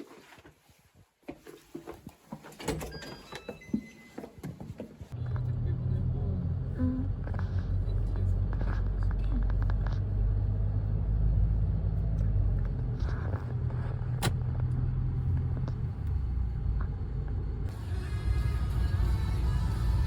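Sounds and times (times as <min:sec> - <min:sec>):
car interior road noise: 0:05.1 - 0:20.0.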